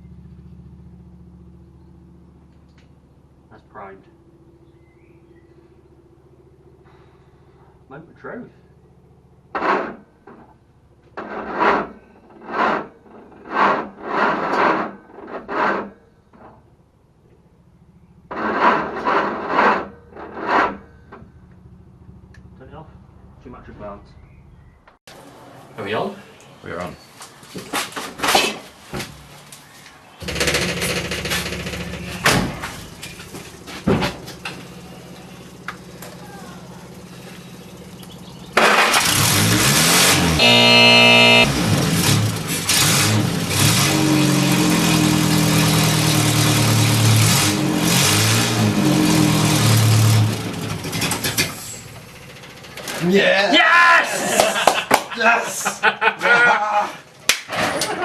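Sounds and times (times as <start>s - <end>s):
engine cranking on starter: 30.2s - 32.3s, 36.9s - 43.8s.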